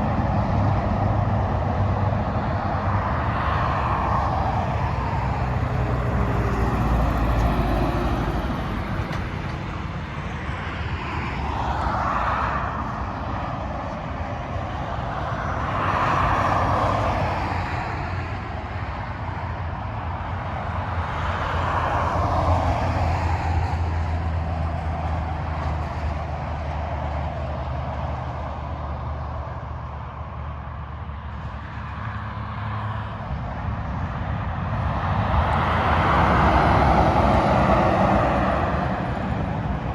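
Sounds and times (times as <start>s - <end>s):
low hum of engines: 0.0s - 39.9s
vehicles passing with tyre roar: 0.0s - 39.9s.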